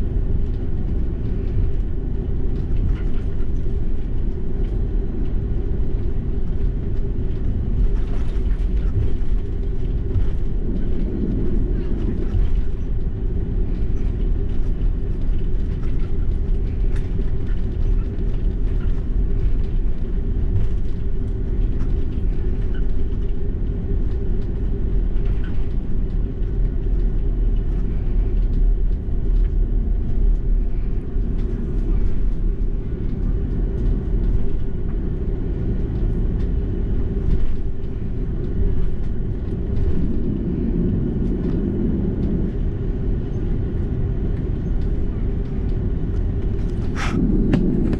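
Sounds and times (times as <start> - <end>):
aircraft cabin low rumble: 0.0 - 47.9.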